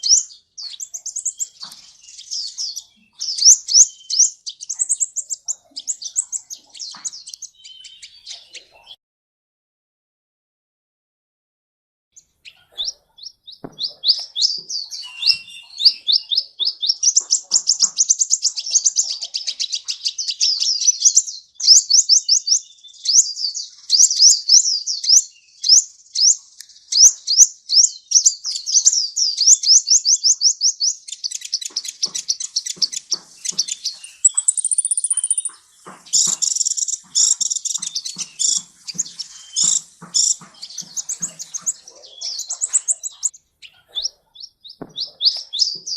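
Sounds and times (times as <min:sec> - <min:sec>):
bird chirps and trills: 0:00.0 - 0:09.0, 0:12.2 - 0:45.9
high bird whistle: 0:13.7 - 0:16.3, 0:33.5 - 0:38.6.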